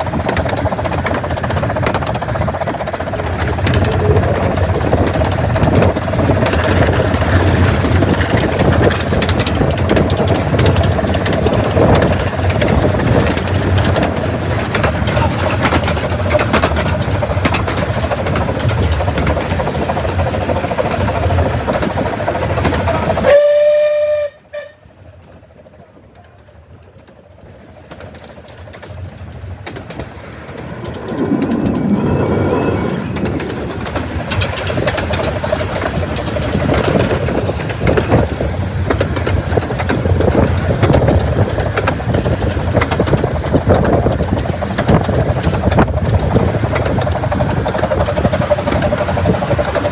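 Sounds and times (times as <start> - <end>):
miniature train running on rails: 0.0 - 49.9
train whistle: 23.2 - 24.9.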